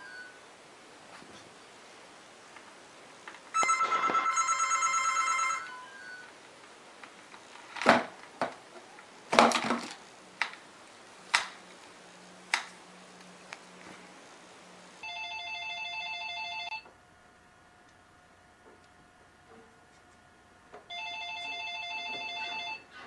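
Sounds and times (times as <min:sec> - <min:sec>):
telephone ringing electronic warble: 0:03.6 - 0:06.3, 0:15.0 - 0:16.8, 0:20.9 - 0:22.8.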